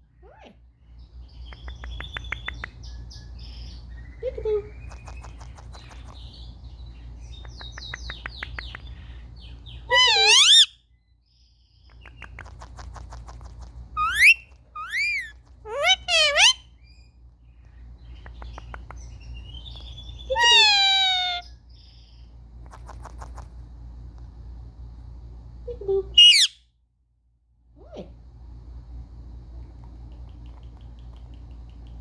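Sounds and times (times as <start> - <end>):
soft clicking chatter: 4.8 - 6.3, 7.3 - 9.0, 11.9 - 13.9, 17.6 - 19.2, 29.8 - 32.0
parakeet warbling calls: 9.8 - 10.8, 14.0 - 16.7, 20.0 - 21.6, 26.2 - 26.6.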